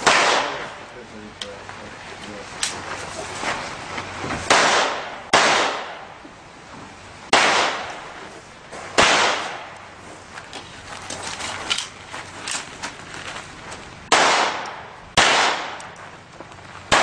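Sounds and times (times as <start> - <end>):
pistol shots with echo: 0.0 - 0.8, 4.5 - 6.2, 7.3 - 8.0, 8.9 - 9.8, 14.1 - 16.0.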